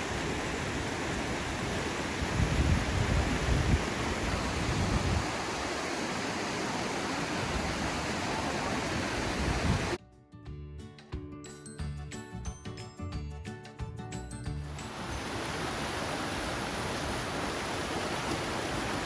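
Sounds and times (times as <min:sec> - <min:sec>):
waterfall roaring: 0:00.0 - 0:10.0, 0:14.8 - 0:19.0.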